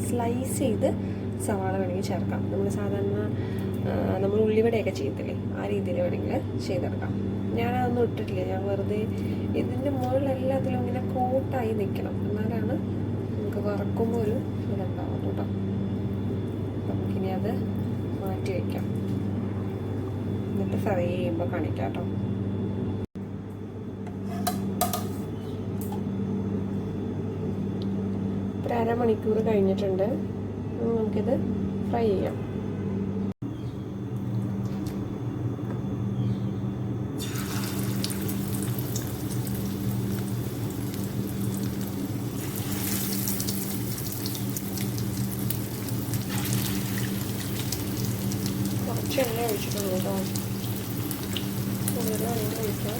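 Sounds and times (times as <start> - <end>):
steady low hum: 0.0 - 52.9
oil crackling in a frying pan: 37.2 - 52.9.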